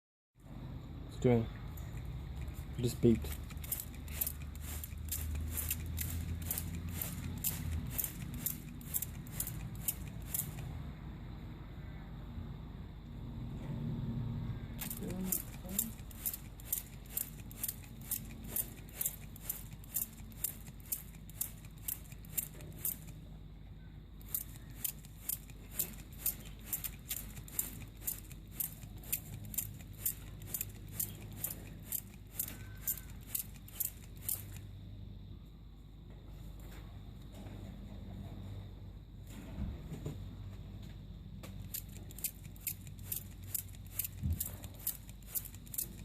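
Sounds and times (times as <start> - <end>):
spray bottle spritzing: 2.4 - 10.7, 14.8 - 23.1, 24.3 - 34.6, 41.6 - 46.0.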